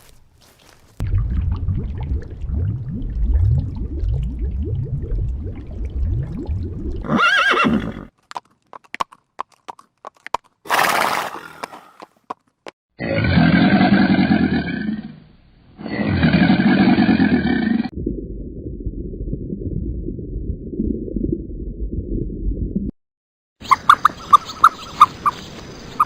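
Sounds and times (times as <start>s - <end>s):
low rapid rumbling: 1.0s - 7.0s, 17.9s - 22.9s
horse whinny: 7.0s - 8.1s.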